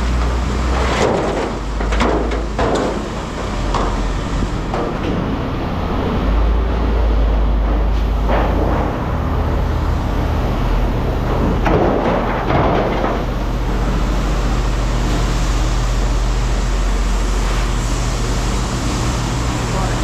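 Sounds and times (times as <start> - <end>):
engine humming: 0.0 - 20.0
rattling noises: 7.5 - 13.9.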